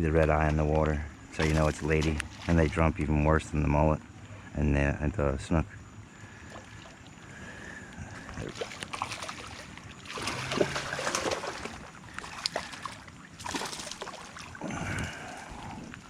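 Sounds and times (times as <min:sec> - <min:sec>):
fish splashing at water surface: 0:08.2 - 0:16.0.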